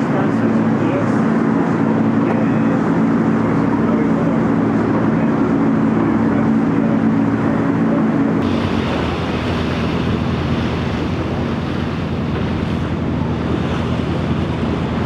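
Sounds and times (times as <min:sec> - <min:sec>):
boat engine humming: 0:00.0 - 0:15.0
wind and water rushing: 0:00.0 - 0:15.0.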